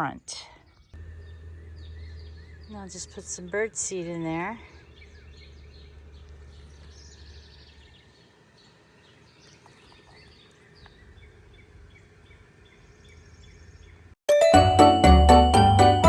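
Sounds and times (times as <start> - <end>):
small birds chirping: 0.0 - 14.2
low rumble: 0.9 - 8.1.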